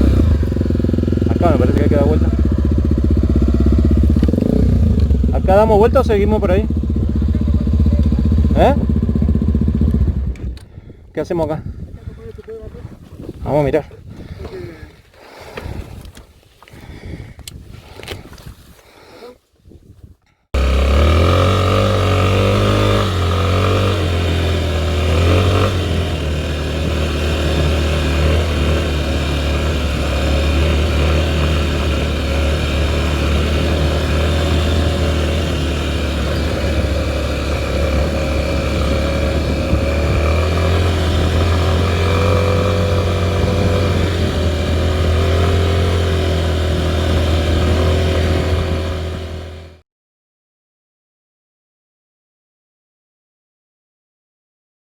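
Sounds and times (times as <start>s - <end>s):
motorbike engine running: 0.0s - 10.6s, 20.6s - 49.8s.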